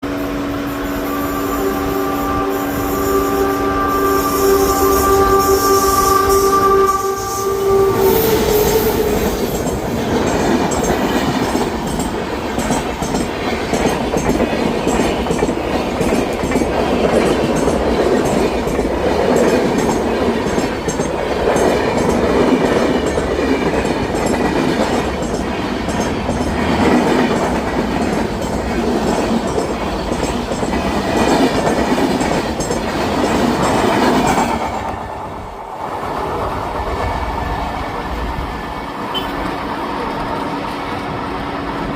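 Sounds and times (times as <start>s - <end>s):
train horn chord: 0.0s - 9.6s
train rumbling past: 0.0s - 41.9s
wheels clickety-clack on rail joints: 8.0s - 41.9s.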